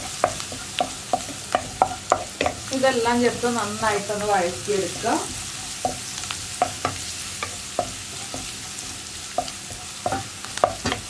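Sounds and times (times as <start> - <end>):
spatula tapping and scraping pan: 0.0 - 2.7, 4.8 - 11.0
spices sizzling in hot oil: 0.0 - 11.0.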